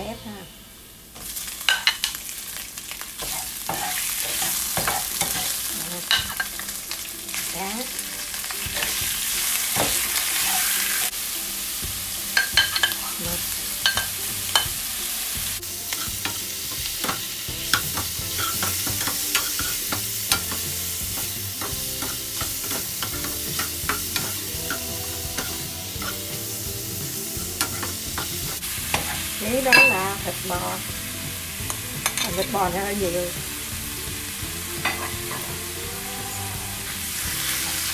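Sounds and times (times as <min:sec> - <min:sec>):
seafood sizzling in hot oil: 0:00.8 - 0:36.2, 0:36.8 - 0:37.9
metal ladle scraping a pan: 0:03.2 - 0:06.6, 0:09.7 - 0:11.1, 0:15.9 - 0:26.3.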